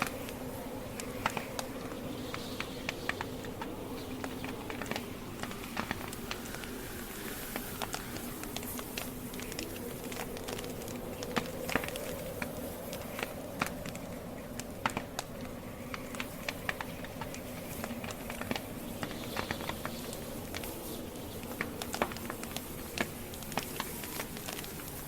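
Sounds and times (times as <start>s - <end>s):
campfire crackling and popping: 0.0s - 25.0s.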